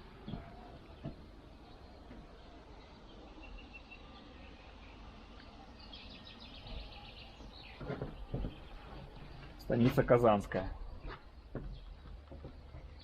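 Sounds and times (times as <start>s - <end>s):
small birds chirping and trilling: 0.0s - 13.0s
short low thuds: 10.8s - 13.0s.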